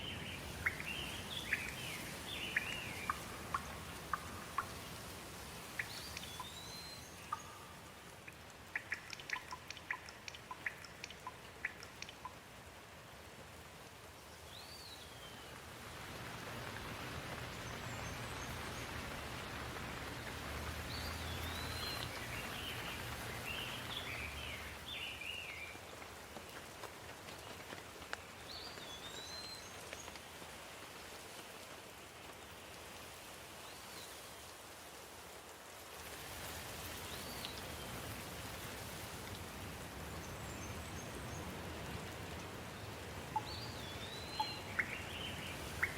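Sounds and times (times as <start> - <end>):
bird chirping: 0.0 - 5.0, 5.8 - 7.9, 8.7 - 12.3, 20.8 - 25.8, 43.3 - 45.9
steady rainfall: 0.0 - 45.9.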